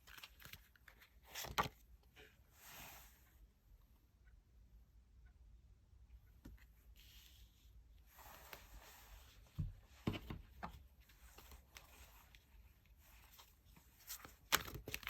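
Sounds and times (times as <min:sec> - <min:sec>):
cards rustling: 0:14.0 - 0:15.0.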